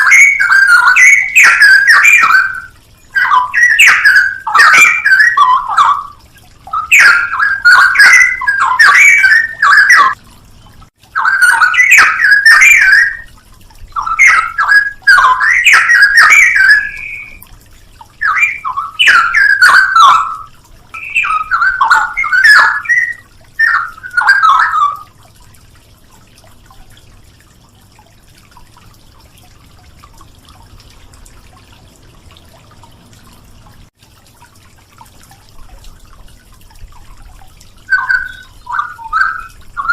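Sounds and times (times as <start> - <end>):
bird singing warbled phrases: 0.0 - 13.3, 13.9 - 17.5, 18.1 - 25.2, 37.8 - 39.9.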